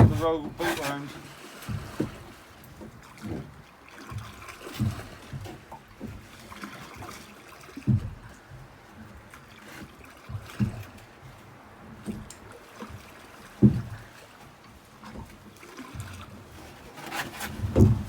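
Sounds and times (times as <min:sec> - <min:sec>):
water splashing and dribbling: 0:00.0 - 0:18.0
low knocks: 0:17.6 - 0:18.0.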